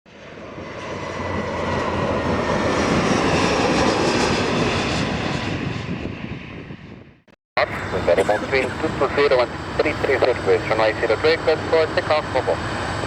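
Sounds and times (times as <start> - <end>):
airliner engine noise passing: 0.1 - 13.0.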